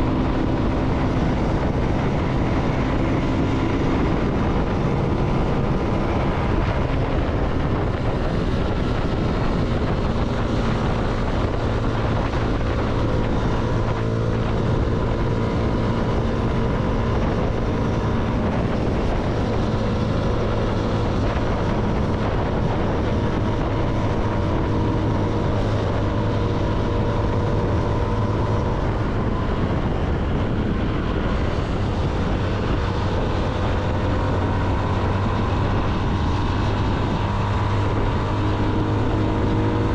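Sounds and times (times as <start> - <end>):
motorcycle engine cruising: 0.0 - 39.9
wind noise on microphone: 0.0 - 39.9.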